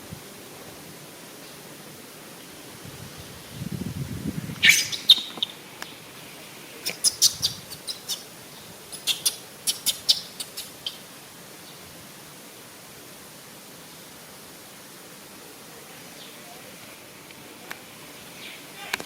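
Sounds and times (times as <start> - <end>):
animal chirps and squeaks: 4.6 - 5.6, 6.8 - 8.3, 8.9 - 11.0.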